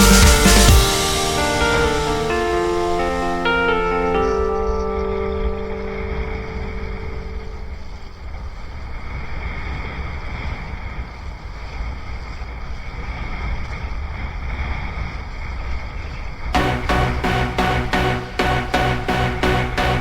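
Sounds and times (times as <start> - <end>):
music with a beat: 0.0 - 4.1, 16.6 - 20.0.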